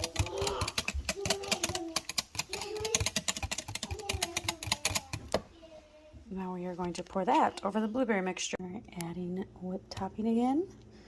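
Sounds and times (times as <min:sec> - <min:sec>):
whisk rattling against bowl: 0:00.0 - 0:05.4.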